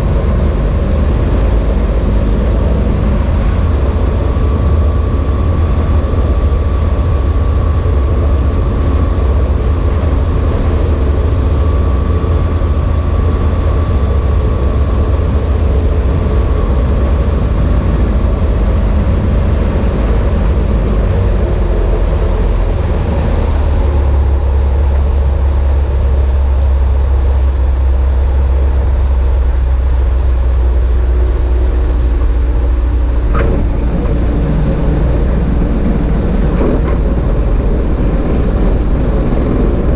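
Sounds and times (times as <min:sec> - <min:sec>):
light aircraft engine drone: 0:00.0 - 0:39.9.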